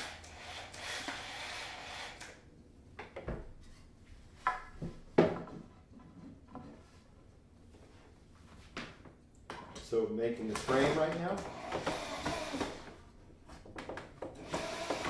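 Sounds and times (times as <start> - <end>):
drill running: 0.0 - 2.3, 11.4 - 12.9, 14.4 - 15.0
wooden boards knocking: 4.4 - 5.7.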